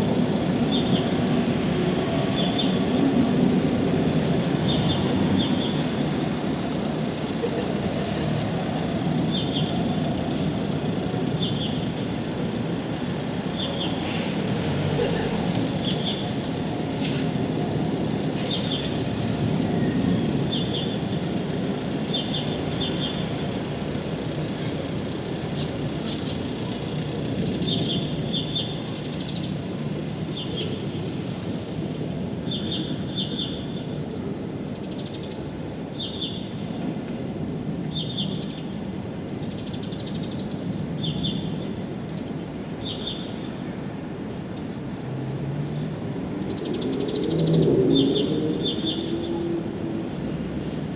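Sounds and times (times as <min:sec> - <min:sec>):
bird chirping: 0:39.4 - 0:43.5, 0:46.5 - 0:49.4.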